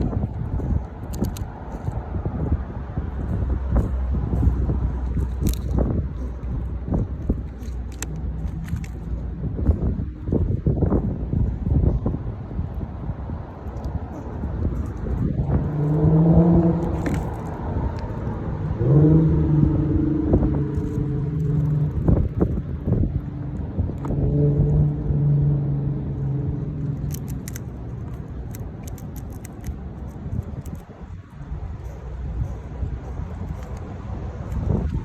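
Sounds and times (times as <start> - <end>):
low droning hum: 0.0 - 35.0
wind rumbling on microphone: 0.0 - 35.0
small sharp clicks: 26.8 - 30.9.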